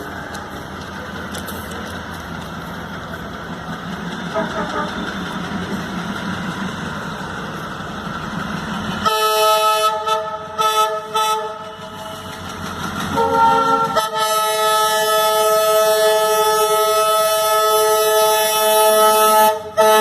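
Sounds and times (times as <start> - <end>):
locomotive engine rumbling: 0.0 - 20.0
multi-tone train horn: 4.3 - 5.1, 9.0 - 12.2, 13.1 - 20.0.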